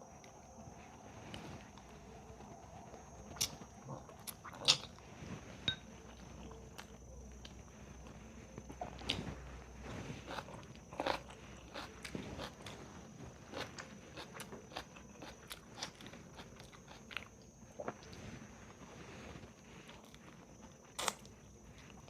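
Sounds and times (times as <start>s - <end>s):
person chewing crunchy food: 1.4s - 18.8s, 19.8s - 22.0s.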